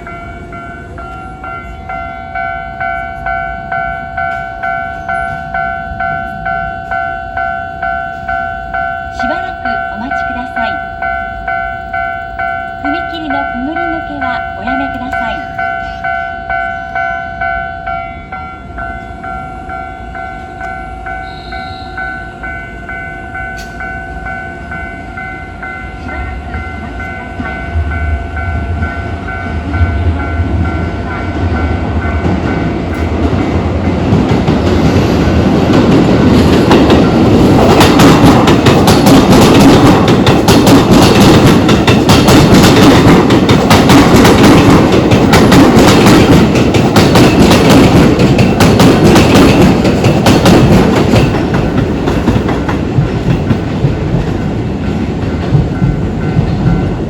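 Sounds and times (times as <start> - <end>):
level crossing warning bell: 0.0 - 34.4, 35.4 - 57.0
electric train passing: 0.0 - 57.0
wheels clattering over rail joints: 32.0 - 57.0.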